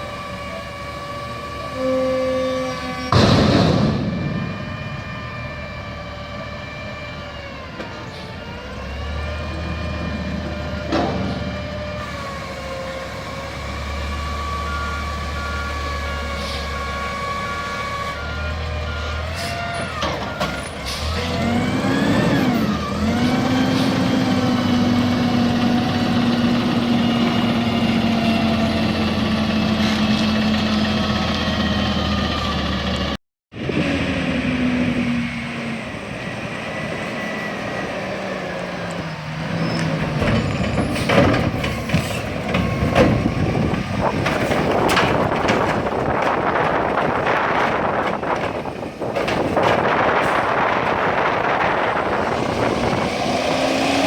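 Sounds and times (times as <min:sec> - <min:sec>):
garbage truck engine revving: 0:00.0 - 0:54.0
loud metal clanks and bangs: 0:02.8 - 0:05.4, 0:10.0 - 0:11.9, 0:39.9 - 0:53.0.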